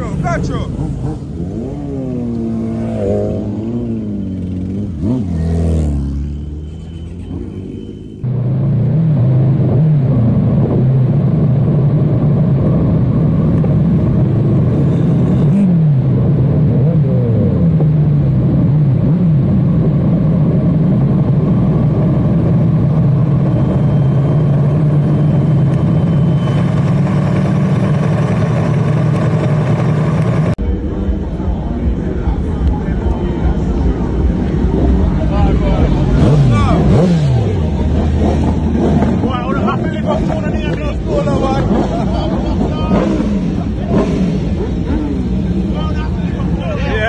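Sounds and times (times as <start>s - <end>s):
motorcycle engine running: 0.0s - 46.7s.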